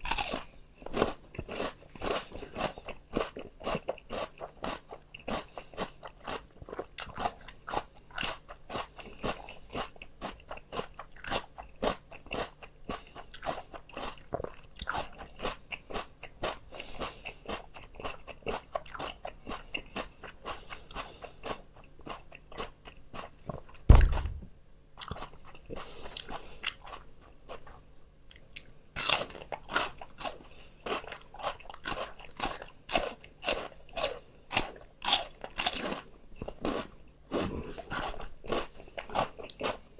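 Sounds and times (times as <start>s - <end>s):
crunching raw vegetables: 0.0s - 39.9s
loud low thump: 23.9s - 24.5s.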